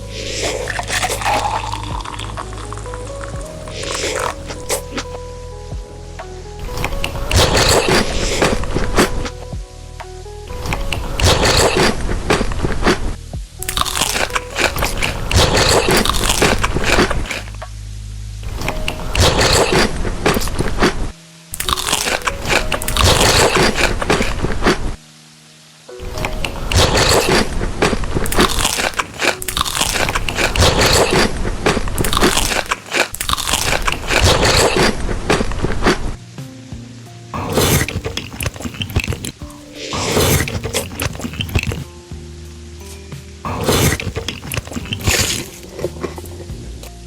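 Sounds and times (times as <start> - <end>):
crunching and chewing crisp food: 0.2 - 5.1, 6.8 - 9.4, 10.6 - 17.6, 18.6 - 21.0, 21.6 - 24.9, 26.3 - 36.1, 37.4 - 41.9, 43.5 - 46.6.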